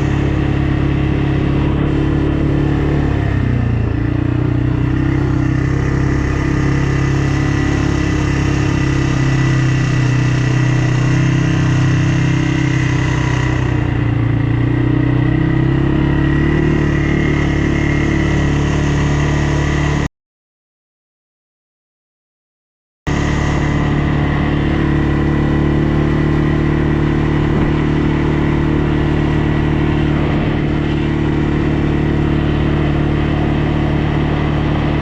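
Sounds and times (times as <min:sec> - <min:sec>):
atv engine running: 0:00.0 - 0:20.1, 0:23.1 - 0:35.0.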